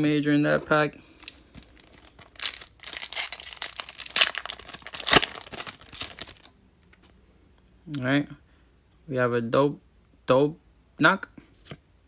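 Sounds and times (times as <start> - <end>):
foil wrapper crinkling and tearing: 1.2 - 6.5.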